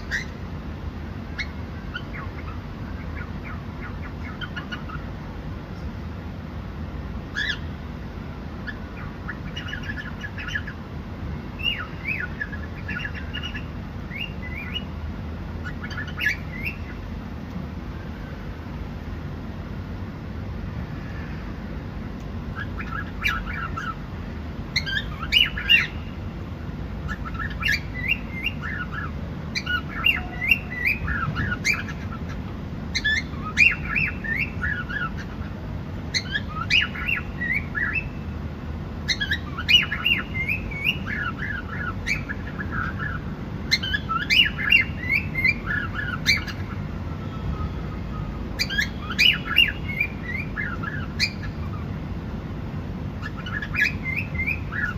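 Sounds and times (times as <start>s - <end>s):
cockatiel chirping: 0.0s - 0.4s, 1.4s - 5.1s, 7.3s - 7.7s, 8.6s - 10.8s, 11.6s - 14.9s, 15.6s - 17.0s, 22.5s - 24.0s, 24.7s - 26.1s, 27.0s - 35.5s, 36.1s - 38.2s, 39.0s - 51.9s, 53.2s - 54.9s
steady low hum: 0.0s - 54.9s.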